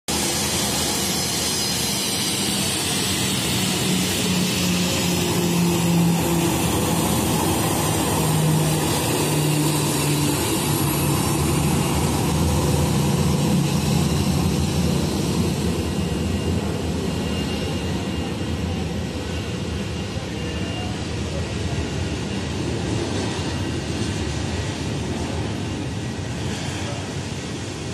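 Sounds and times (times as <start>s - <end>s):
jet airliner roar: 0.1s - 27.9s.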